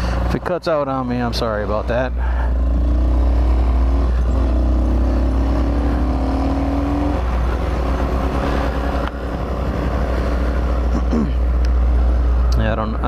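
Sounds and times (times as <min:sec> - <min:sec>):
dirt bike engine accelerating: 0:02.4 - 0:11.6.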